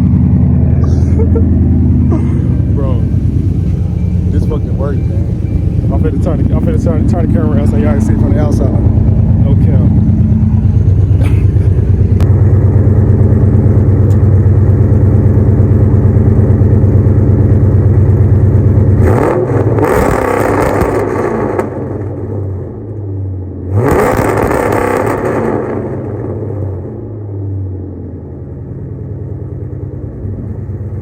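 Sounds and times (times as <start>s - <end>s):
rough exhaust bursts: 0.0s - 20.6s
engine stuttering on rev limiter: 0.0s - 22.1s, 23.7s - 26.4s.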